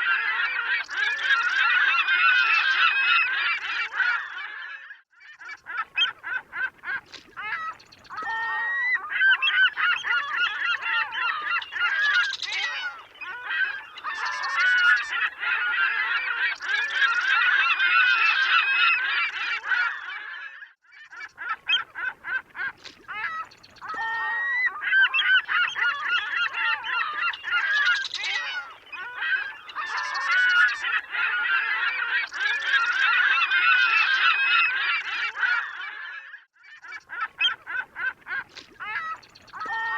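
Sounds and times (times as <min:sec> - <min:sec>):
gulls calling: 0:05.4 - 0:20.1, 0:21.1 - 0:36.0, 0:36.8 - 0:39.9.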